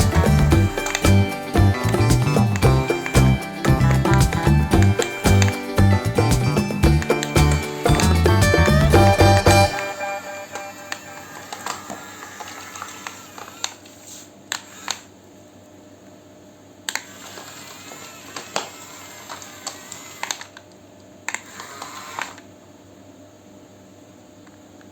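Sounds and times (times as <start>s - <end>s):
toy electric motors whirring: 10.4s - 15.1s, 16.9s - 20.6s, 21.3s - 22.5s.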